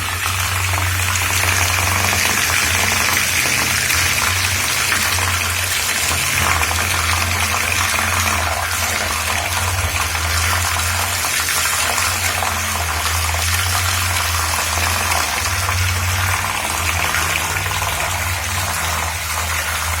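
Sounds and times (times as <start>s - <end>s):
fan blades churning water: 0.0s - 20.0s
low motor hum: 0.0s - 20.0s.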